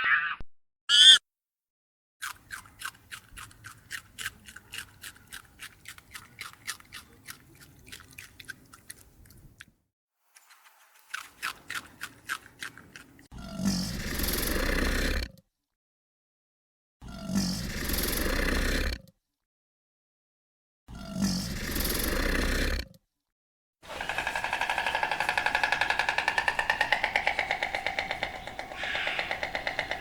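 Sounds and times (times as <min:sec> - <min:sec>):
animal chewing food: 0:02.2 - 0:09.7, 0:10.4 - 0:13.3, 0:23.9 - 0:30.0.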